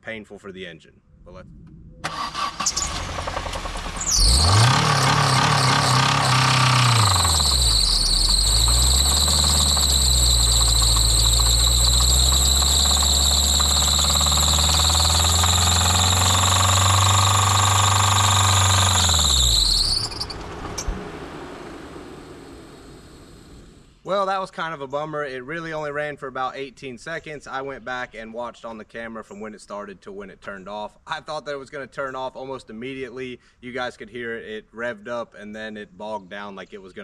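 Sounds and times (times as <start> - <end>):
car engine starter cranking: 2.0 - 23.9
car engine revving hard: 2.1 - 23.8
high-pitched engine squeal: 2.1 - 23.9.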